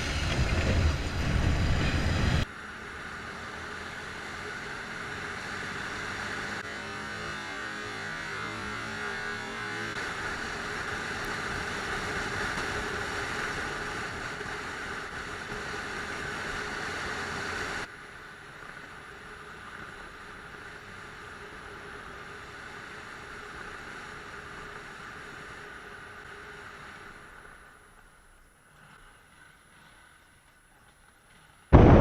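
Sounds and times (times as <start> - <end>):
wind rush: 0.0 - 2.4
motorcycle road noise: 0.0 - 32.0.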